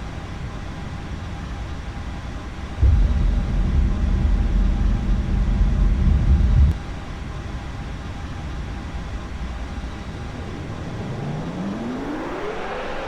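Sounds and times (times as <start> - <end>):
faint whining tones: 0.0 - 13.0
jet engines rushing: 0.3 - 13.0
wind on microphone: 2.8 - 6.8
whine rising in pitch: 2.8 - 13.0.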